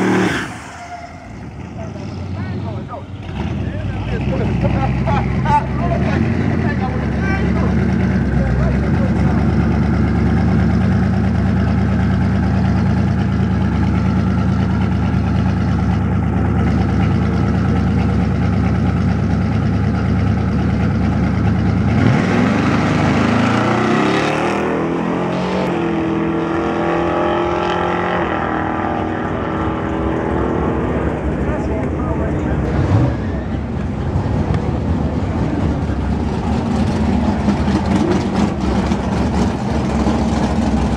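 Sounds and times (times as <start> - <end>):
pickup engine idling and revving: 0.0 - 40.9.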